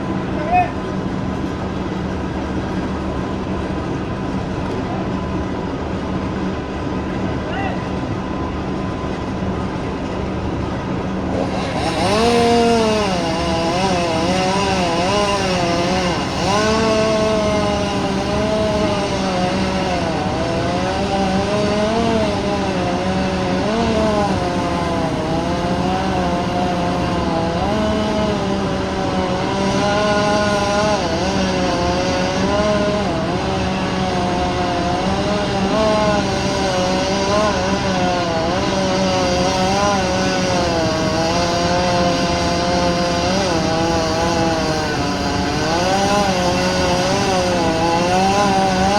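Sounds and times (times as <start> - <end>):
low engine drone: 0.0 - 48.9
chainsaw cutting wood: 11.2 - 48.9.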